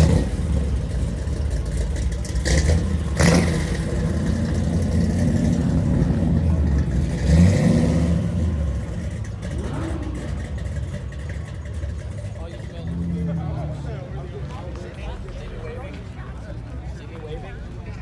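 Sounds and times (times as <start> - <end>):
car engine revving: 0.0 - 14.2.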